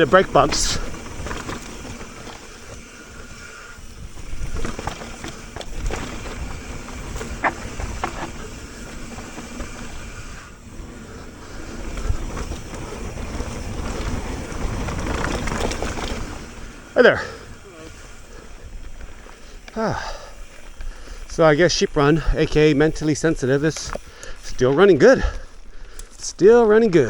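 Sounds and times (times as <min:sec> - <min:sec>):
bike knocks and rattles: 0:00.0 - 0:20.7
bike tyres rolling on dirt: 0:00.0 - 0:27.0
wind noise on microphone: 0:00.8 - 0:16.9.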